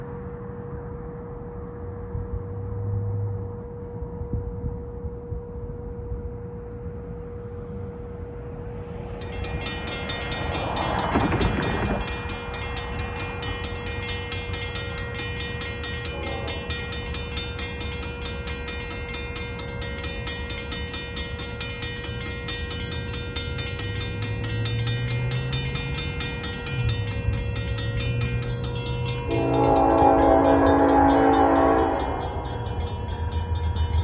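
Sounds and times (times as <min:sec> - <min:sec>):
train passing with low rumble: 0:00.0 - 0:34.0
crossing warning bells ringing: 0:04.8 - 0:34.0.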